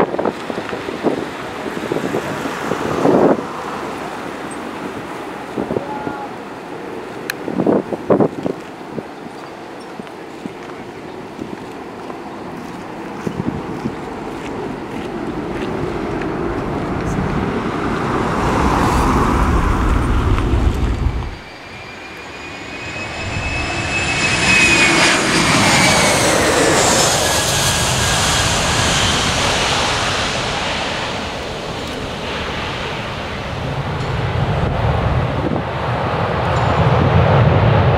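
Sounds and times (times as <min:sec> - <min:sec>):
jet airliner passing overhead: 0:00.0 - 0:37.9
heavy low rumble: 0:14.6 - 0:37.9.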